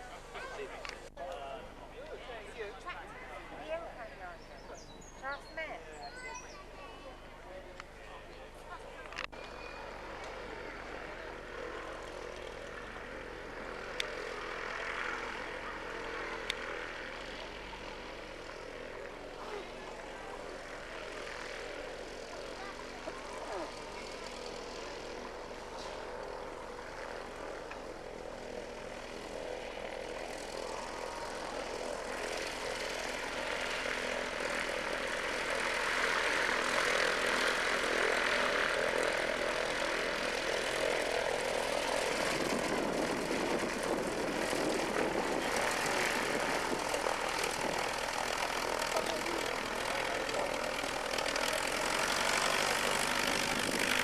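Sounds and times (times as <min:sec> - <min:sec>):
propeller aircraft engine: 0:00.0 - 0:54.0.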